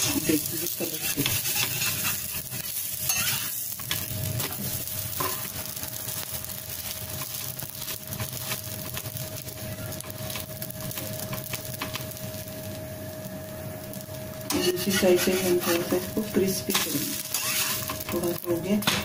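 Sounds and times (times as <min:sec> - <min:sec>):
spatula scraping and tapping griddle: 0:00.0 - 0:05.5, 0:14.5 - 0:16.0, 0:16.7 - 0:18.2
toast sizzling in oil: 0:00.0 - 0:19.0.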